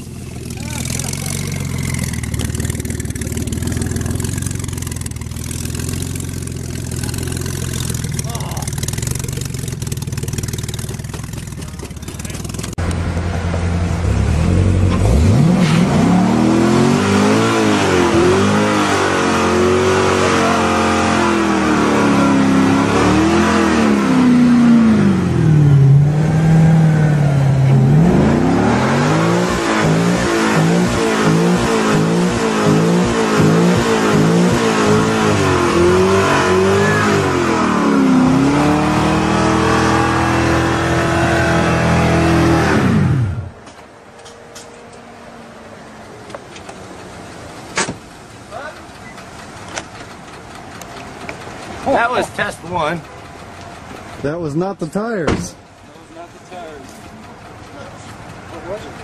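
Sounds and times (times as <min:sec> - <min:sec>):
car engine revving hard: 0:14.0 - 0:43.6.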